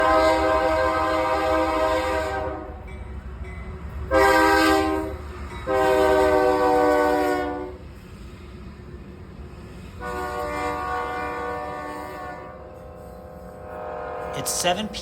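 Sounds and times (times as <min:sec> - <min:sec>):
train horn blasts: 0:00.0 - 0:02.9, 0:04.1 - 0:07.9, 0:10.0 - 0:15.0
train rumbling past: 0:00.0 - 0:15.0.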